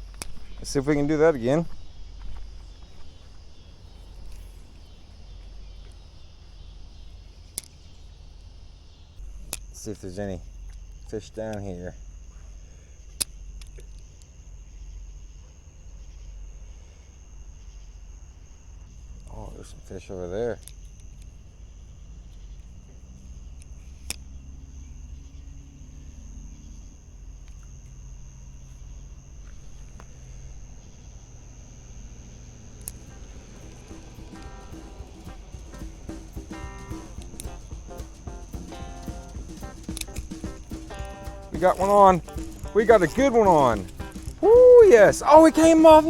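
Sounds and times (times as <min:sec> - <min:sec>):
steady low rumble: 0:00.0 - 0:25.4, 0:26.1 - 0:46.0
faint high insect buzz: 0:00.0 - 0:46.0
sharp click: 0:32.8 - 0:44.6.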